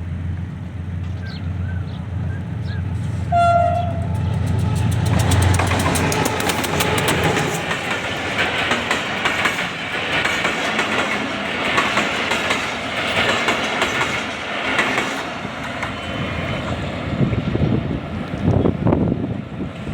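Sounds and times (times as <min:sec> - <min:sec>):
train coaches rolling past: 0:00.0 - 0:19.9
wheels clickety-clack over rail joints: 0:00.1 - 0:19.9.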